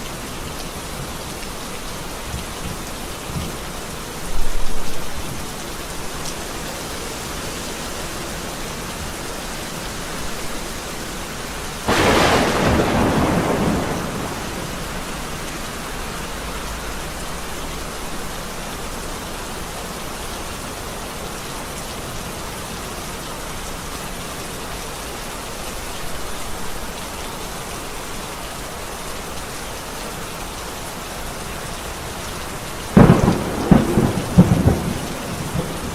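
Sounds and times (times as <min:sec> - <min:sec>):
steady rain falling: 0:00.0 - 0:35.9
thunderclaps: 0:11.9 - 0:15.8, 0:33.0 - 0:35.9.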